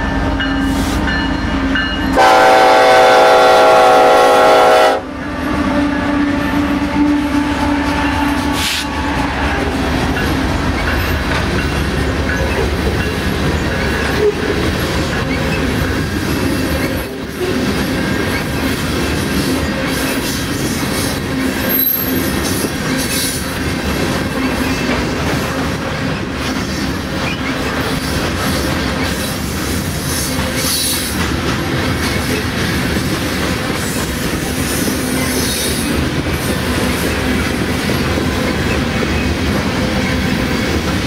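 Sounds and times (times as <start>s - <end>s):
locomotive rumble: 0.0s - 41.0s
locomotive horn: 2.1s - 9.8s.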